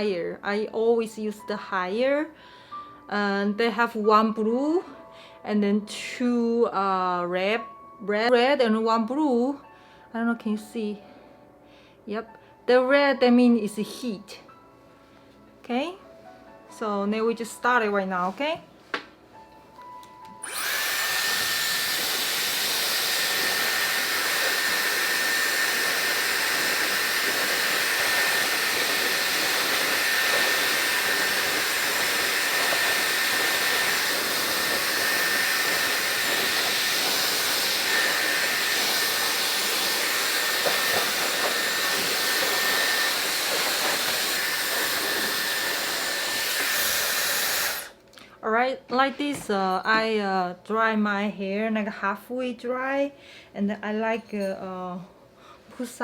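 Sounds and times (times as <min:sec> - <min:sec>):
hair dryer blowing: 0:19.8 - 0:48.0.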